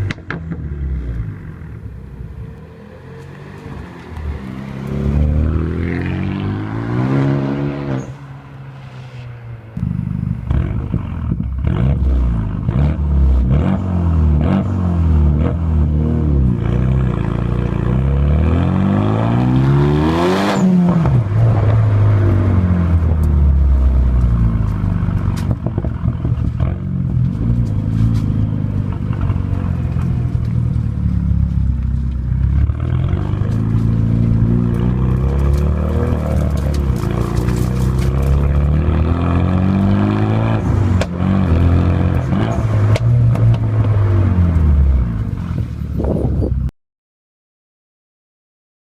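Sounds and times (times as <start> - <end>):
car engine revving hard: 4.2 - 8.2, 9.8 - 23.0, 32.6 - 45.2.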